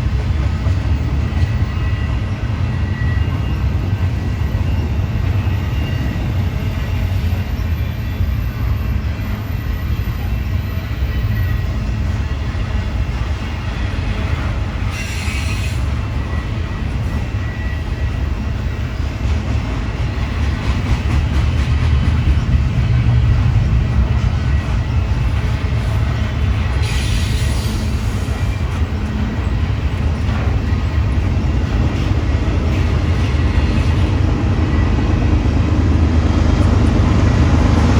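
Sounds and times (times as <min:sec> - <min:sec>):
train wheels rumbling on rails: 0:00.0 - 0:37.9
wheel squeal: 0:01.2 - 0:11.9, 0:14.8 - 0:18.2.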